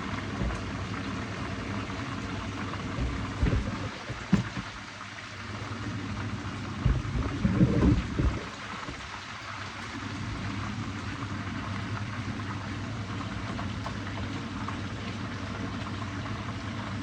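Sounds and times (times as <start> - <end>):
fish sizzling in hot oil: 0.0 - 17.0
low knocks: 2.9 - 4.8, 6.8 - 9.1.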